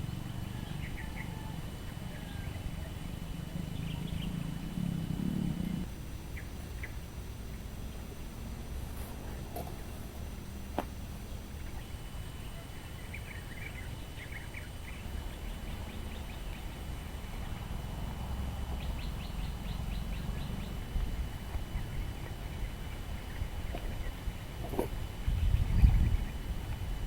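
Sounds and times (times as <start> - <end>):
bird chirps: 0.4 - 4.8, 5.4 - 7.0, 11.2 - 17.7, 18.7 - 20.9.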